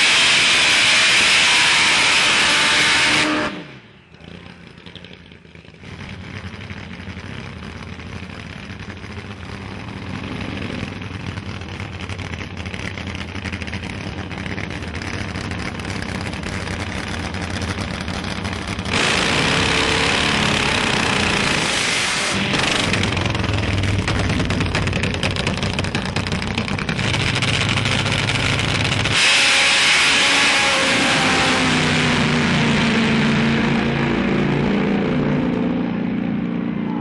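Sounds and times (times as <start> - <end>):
high-revving burnout tyre spinning: 0.0 - 4.8, 5.8 - 35.8
motorcycle engine idling: 3.8 - 18.9, 22.5 - 29.2.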